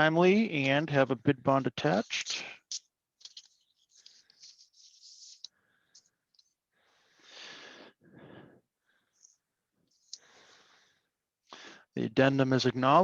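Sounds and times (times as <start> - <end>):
paper pages rustling: 1.8 - 6.6.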